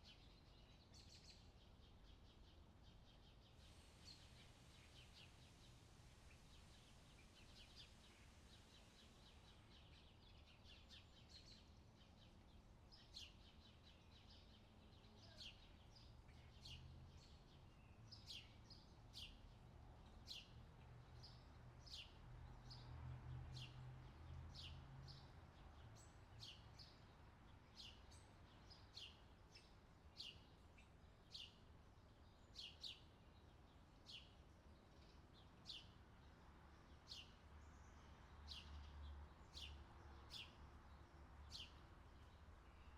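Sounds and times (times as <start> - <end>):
bird chirping: 36.8 - 42.9.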